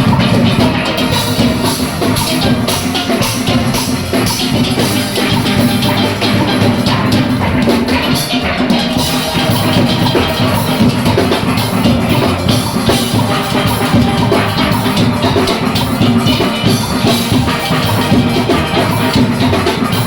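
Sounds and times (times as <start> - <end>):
drum kit and percussion: 0.0 - 20.0
steelpans playing: 0.0 - 20.0.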